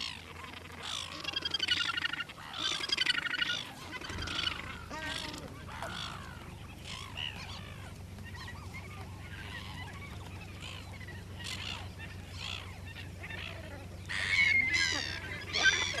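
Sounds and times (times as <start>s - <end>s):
gannets calling harshly: 0.0s - 16.0s
steady low hum: 0.0s - 16.0s.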